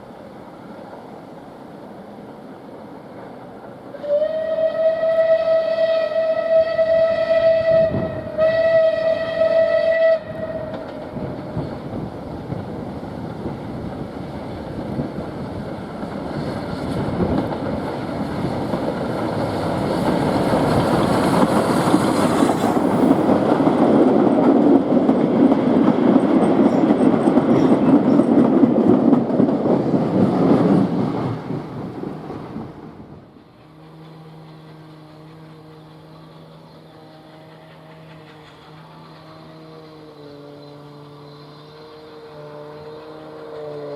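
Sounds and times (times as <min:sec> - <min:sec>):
train running past: 0:00.0 - 0:43.9
steam locomotive whistle: 0:03.9 - 0:11.2, 0:33.6 - 0:43.9.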